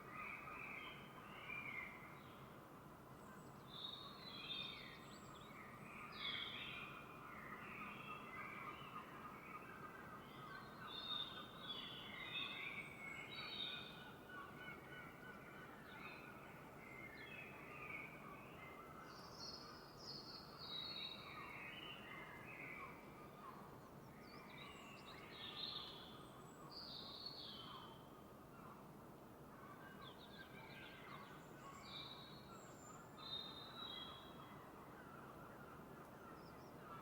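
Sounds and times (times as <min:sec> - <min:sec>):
songbirds singing: 0:29.9 - 0:37.0.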